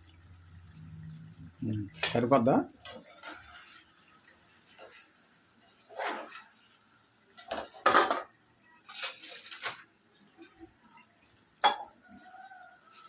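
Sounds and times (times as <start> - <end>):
spoon scraping pot: 5.8 - 6.5.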